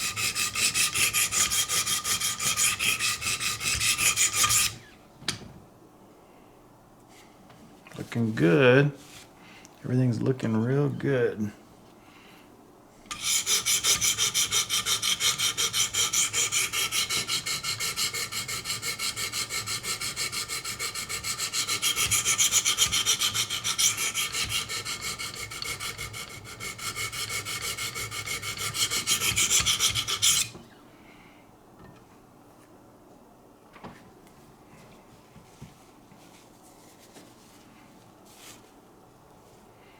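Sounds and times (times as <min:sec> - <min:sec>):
sharpening stone scraping knife blade: 0:13.1 - 0:17.9.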